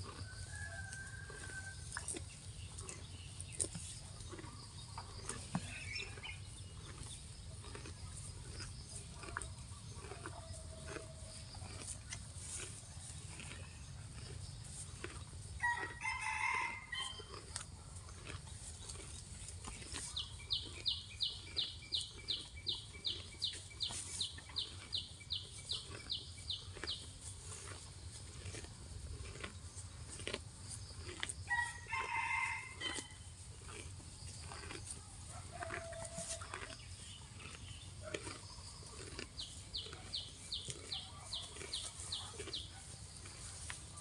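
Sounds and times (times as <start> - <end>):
cow tearing grass: 0.0 - 44.0
rooster crowing: 0.2 - 1.8, 15.6 - 17.2, 31.5 - 33.2.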